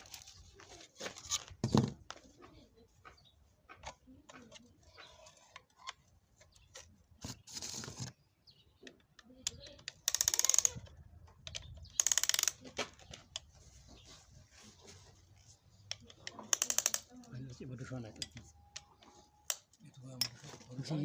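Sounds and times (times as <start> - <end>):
ratchet wrench clicking: 9.5 - 10.9, 11.5 - 12.6, 16.5 - 17.1.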